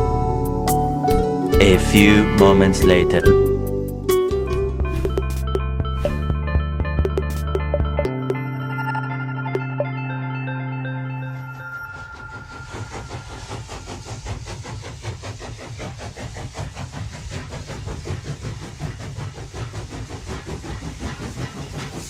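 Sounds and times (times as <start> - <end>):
steam train knocking: 4.6 - 8.5, 11.8 - 22.0
steam hiss: 12.0 - 22.0.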